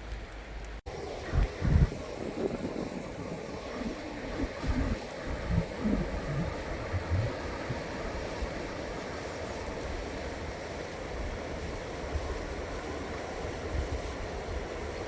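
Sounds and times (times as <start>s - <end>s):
faint low rumble: 0.0s - 10.3s.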